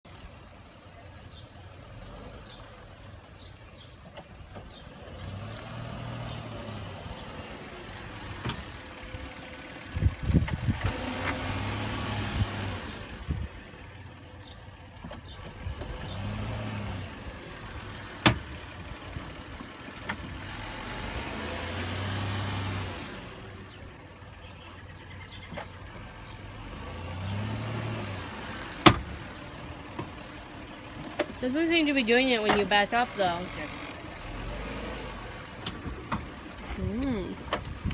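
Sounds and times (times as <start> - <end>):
car engine and rolling noise: 0.0 - 37.9
wheel popping on braking: 1.7 - 37.9.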